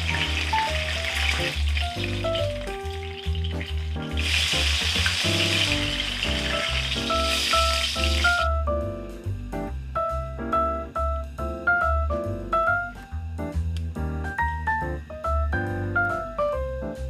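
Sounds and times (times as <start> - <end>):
food sizzling in hot oil: 0.0 - 8.5
piano music: 0.0 - 17.0.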